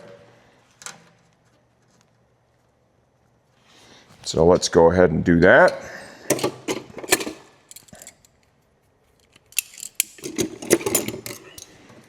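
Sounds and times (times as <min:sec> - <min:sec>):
metal hand tools clinking: 0:05.6 - 0:08.4, 0:09.2 - 0:11.8.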